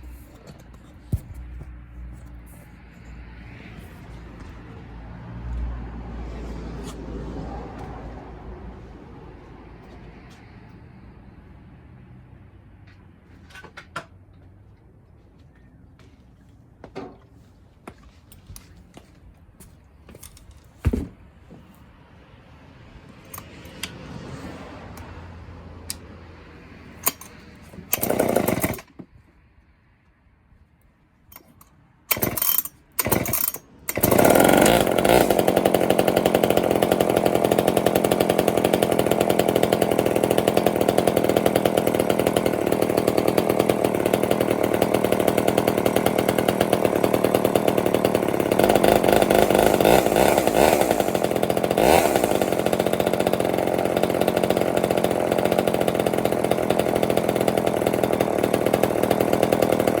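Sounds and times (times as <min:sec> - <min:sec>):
chainsaw pull-start spurts: 0:00.0 - 0:03.1, 0:23.2 - 0:24.0, 0:27.0 - 0:29.0, 0:31.3 - 1:00.0
chainsaw engine running: 0:27.0 - 0:28.9, 0:32.1 - 1:00.0.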